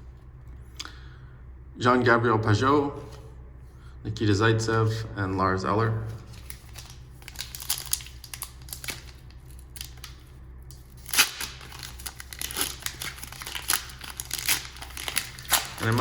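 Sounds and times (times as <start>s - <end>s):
cards being handled: 5.9s - 16.0s
foil wrapper tearing and crinkling: 6.2s - 16.0s.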